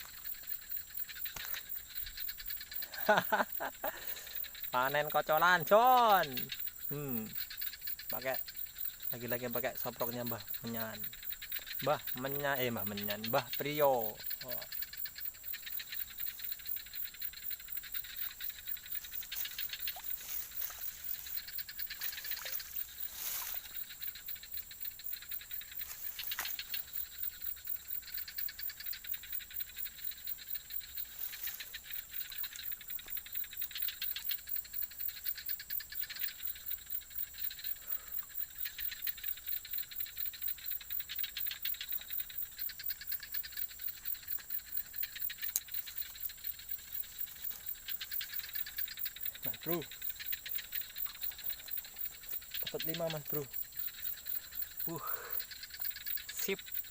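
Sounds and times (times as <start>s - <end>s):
frogs calling: 0.0s - 56.9s
insects ringing: 0.0s - 56.9s
faint clicks: 1.1s - 2.8s, 42.8s - 46.3s.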